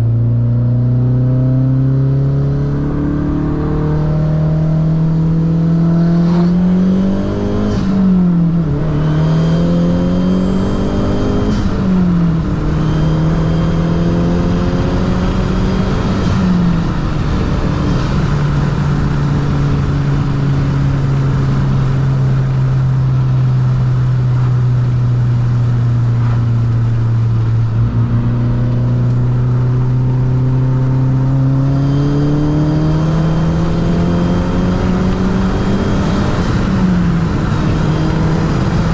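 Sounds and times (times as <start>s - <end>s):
car engine accelerating hard: 0.0s - 38.9s.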